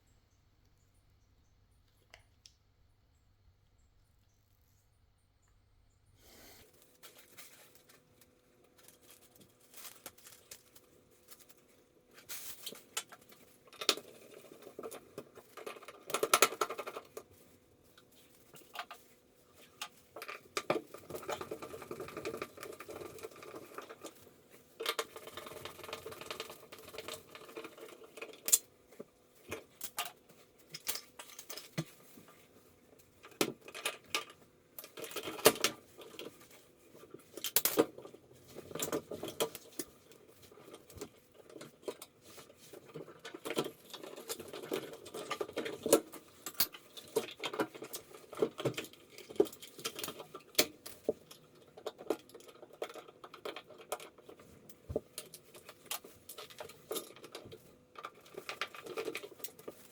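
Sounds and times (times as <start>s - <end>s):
small hard objects clicking: 7.1s - 17.3s.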